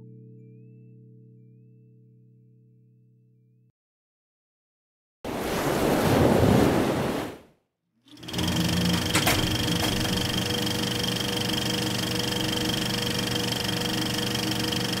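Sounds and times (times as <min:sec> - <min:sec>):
machine-like whirring: 0:08.1 - 0:15.0.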